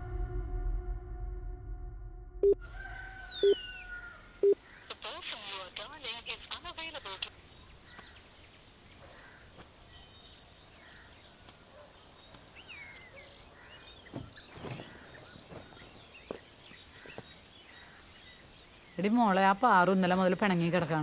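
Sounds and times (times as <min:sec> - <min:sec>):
bird chirps: 0:03.0 - 0:08.4.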